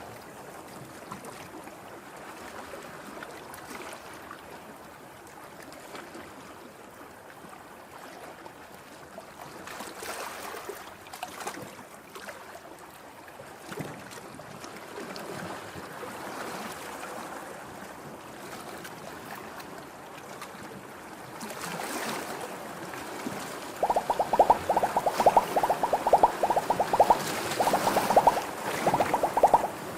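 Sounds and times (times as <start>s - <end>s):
rapid even clicks: 23.8s - 29.7s
ocean waves washing on shore: 23.8s - 29.8s.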